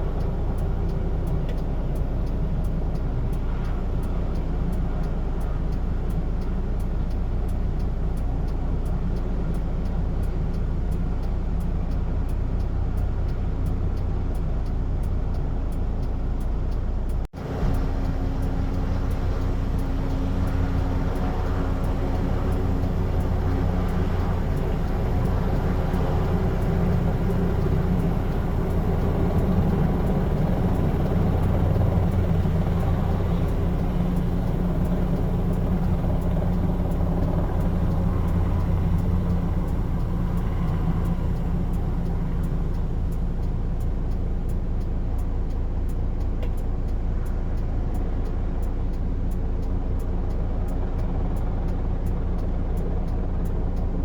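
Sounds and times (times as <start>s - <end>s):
low engine rumble: 0.0s - 54.0s.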